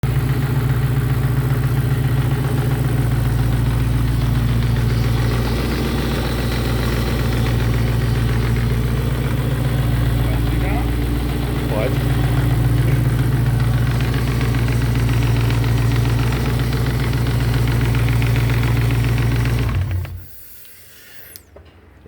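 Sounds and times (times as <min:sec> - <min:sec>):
car engine idling: 0:00.0 - 0:20.6
small mechanical noise: 0:19.4 - 0:21.6.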